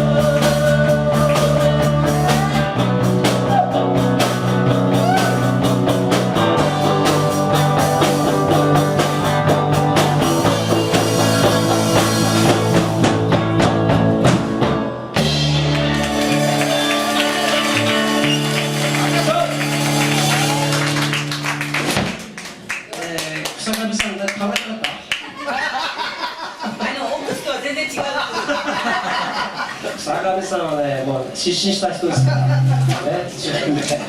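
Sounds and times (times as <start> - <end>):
person singing: 0.0 - 4.1
drum kit: 0.0 - 22.7, 32.2 - 33.4
live rock band playing: 0.0 - 22.7, 32.2 - 33.4.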